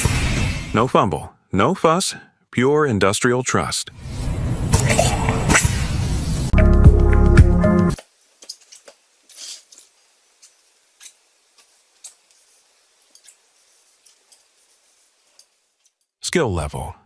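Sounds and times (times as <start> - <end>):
background music: 6.5 - 8.0.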